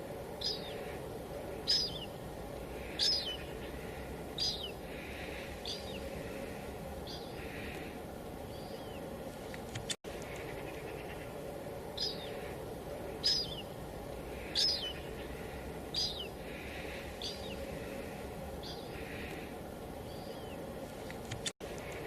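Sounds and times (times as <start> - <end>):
light rain hiss: 0.0 - 22.0
bird chirping: 0.3 - 9.1, 9.7 - 20.7.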